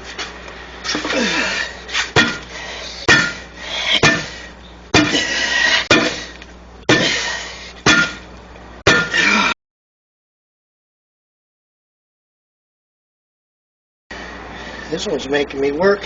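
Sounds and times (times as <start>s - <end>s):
tire tools clanking on steel rim: 3.1s - 6.3s.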